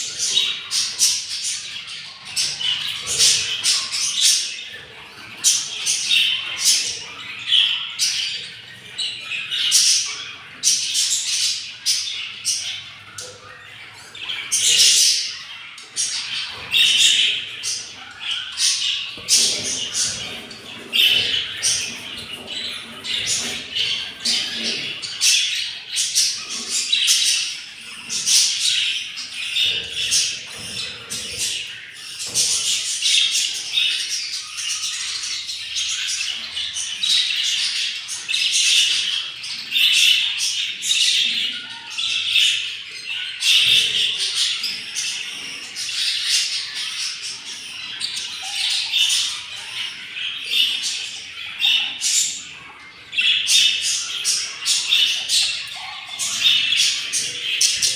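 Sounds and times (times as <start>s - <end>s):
budgerigars chirping and squawking: 0.0s - 57.9s.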